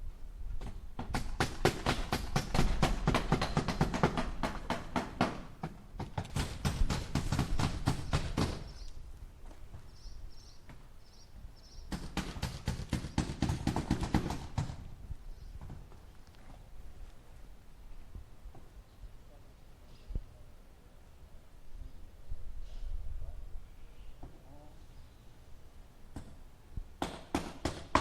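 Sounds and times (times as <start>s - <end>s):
hammer driving nails into wood: 0.6s - 8.8s, 11.9s - 14.9s, 27.0s - 28.0s.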